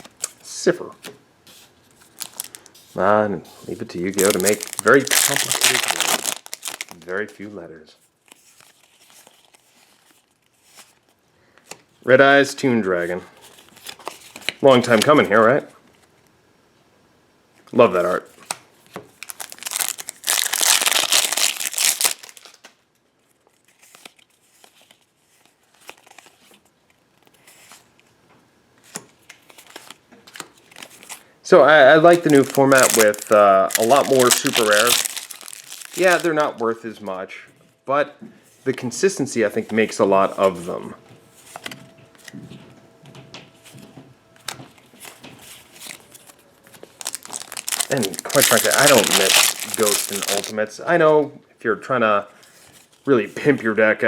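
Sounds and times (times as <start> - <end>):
cards rustling: 1.5 - 3.0, 3.6 - 7.4, 13.5 - 15.6, 18.0 - 22.7, 31.9 - 36.6, 45.0 - 50.6
foil wrapper crinkling and tearing: 2.0 - 2.8, 4.0 - 7.2, 19.1 - 22.7, 32.0 - 36.6, 45.8 - 50.6.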